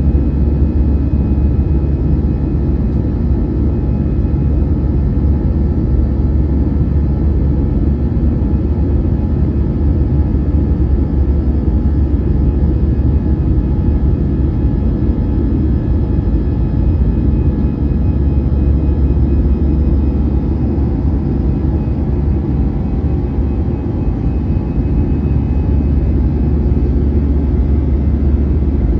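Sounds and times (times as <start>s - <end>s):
faint engine whine: 0.0s - 28.9s
jet engines rumbling: 15.4s - 28.9s.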